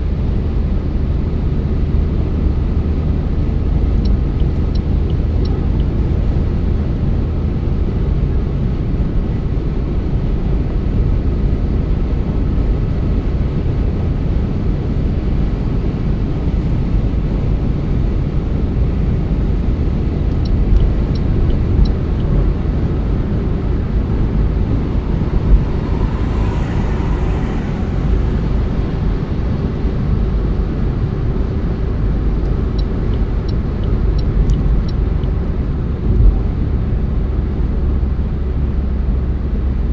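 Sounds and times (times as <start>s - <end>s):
car engine and tyres on road: 0.0s - 39.9s
hissing noise: 21.8s - 30.9s.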